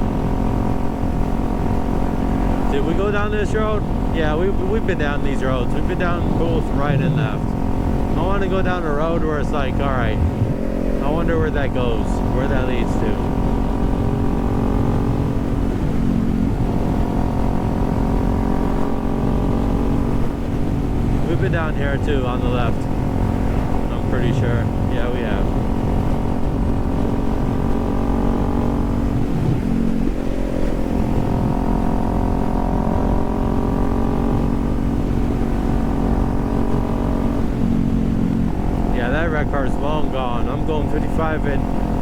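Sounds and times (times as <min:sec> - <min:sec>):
motorcycle engine cruising: 0:00.0 - 0:42.0
wind rushing over microphone: 0:00.0 - 0:42.0.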